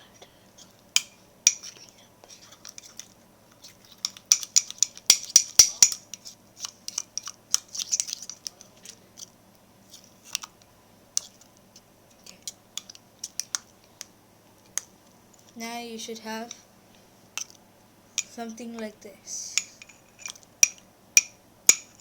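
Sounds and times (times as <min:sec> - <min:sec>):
utensil stirring thick dough: 0:00.2 - 0:15.6.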